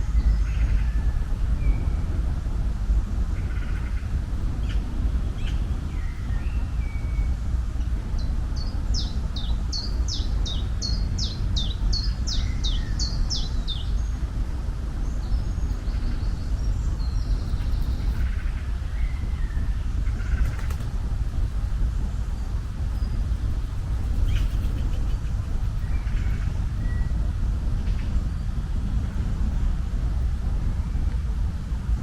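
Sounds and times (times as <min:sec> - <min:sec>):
steady low rumble: 0:00.0 - 0:32.0
scattered bird calls: 0:22.9 - 0:27.0.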